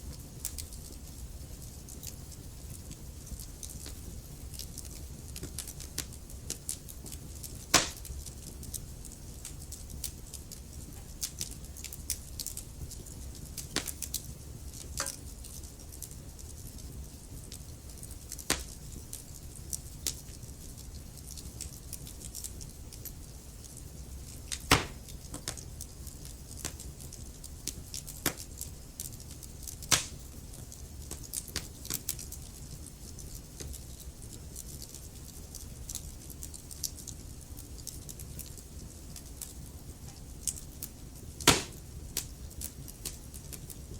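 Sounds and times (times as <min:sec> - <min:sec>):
wood fire crackling: 0:00.0 - 0:43.9
loud sharp pops: 0:07.7 - 0:08.0, 0:24.6 - 0:25.0, 0:29.9 - 0:30.2, 0:41.4 - 0:41.8.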